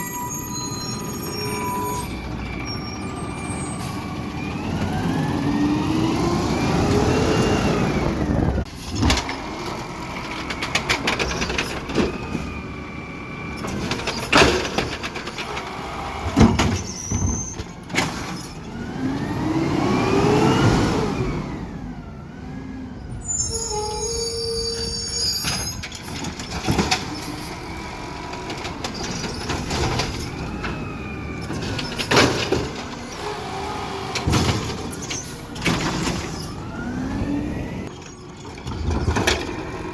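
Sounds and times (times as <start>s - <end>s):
diesel engine revving: 1.1s - 16.6s, 18.0s - 23.2s, 25.9s - 39.9s.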